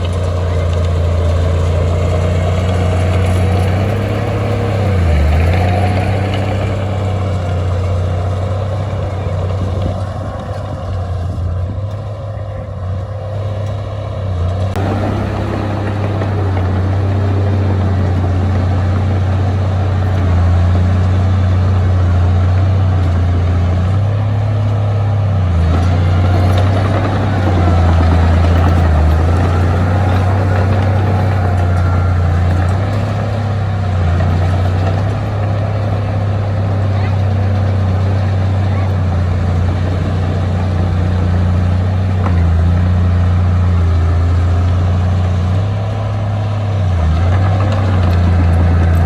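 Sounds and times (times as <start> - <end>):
heavy diesel engine running: 0.0 - 49.0.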